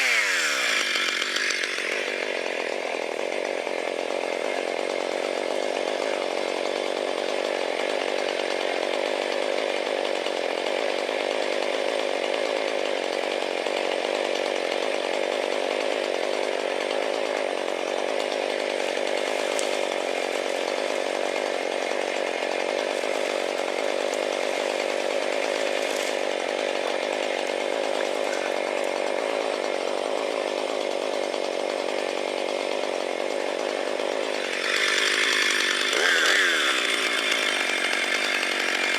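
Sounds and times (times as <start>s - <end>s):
chainsaw cutting firewood: 0.0s - 38.9s.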